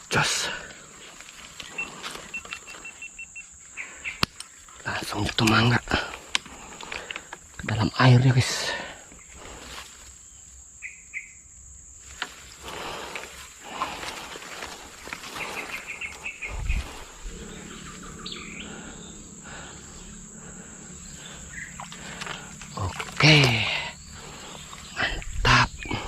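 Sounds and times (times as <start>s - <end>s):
high insect buzz: 0.0s - 26.0s
bird chirps: 1.0s - 5.8s, 10.2s - 11.6s, 14.7s - 26.0s.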